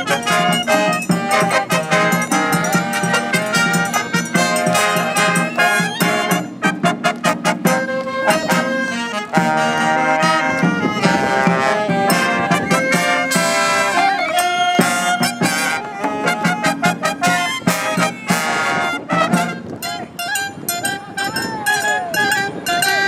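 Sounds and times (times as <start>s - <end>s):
drum beats: 0.0s - 8.8s, 10.4s - 19.6s
brass band playing: 0.0s - 23.0s.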